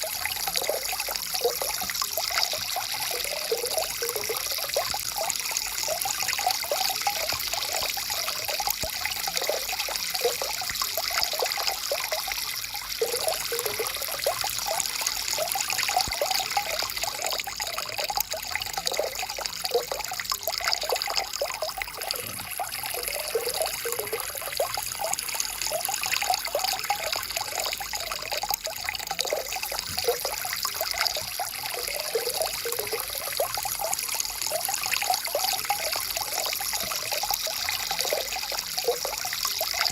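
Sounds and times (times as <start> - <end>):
stream babbling over rocks: 0.0 - 12.0, 13.0 - 39.9.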